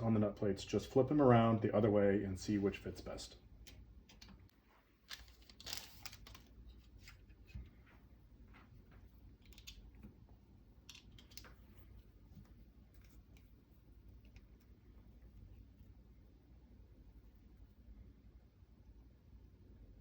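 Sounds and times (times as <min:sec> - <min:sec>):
small metal parts clicking: 0:10.9 - 0:11.5.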